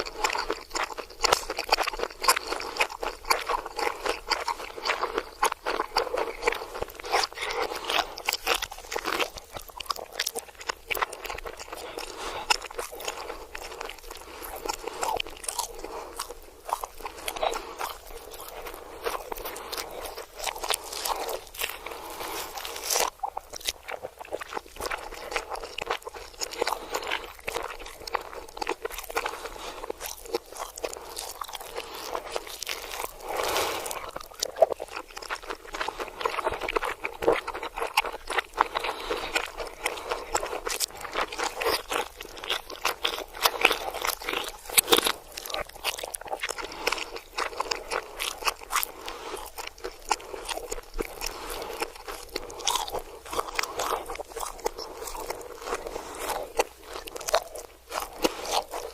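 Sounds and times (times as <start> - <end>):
reversed crunchy chewing: 0.0 - 58.9.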